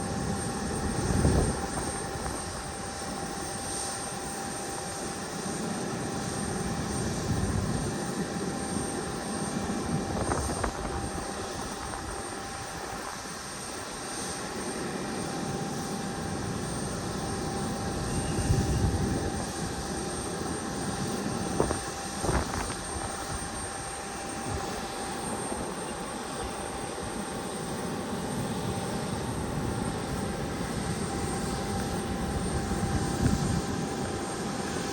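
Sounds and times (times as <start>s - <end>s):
aircraft engines whining: 0.0s - 34.9s
wind gusts on microphone: 0.2s - 2.8s, 9.6s - 13.2s, 18.0s - 19.8s, 21.2s - 23.8s, 29.4s - 34.9s.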